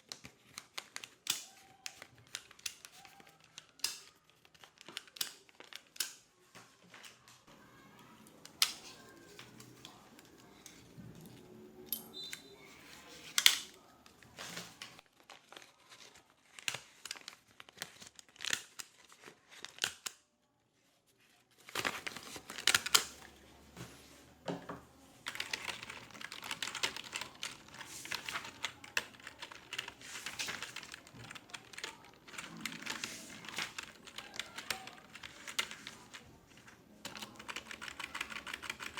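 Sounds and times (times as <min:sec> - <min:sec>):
rapid keyboard typing: 0:25.2 - 0:36.3, 0:37.0 - 0:38.9.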